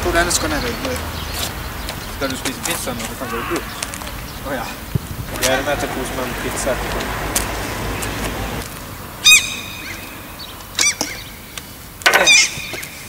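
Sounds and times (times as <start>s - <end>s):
bird calling high: 0.4s - 5.5s, 9.2s - 13.0s.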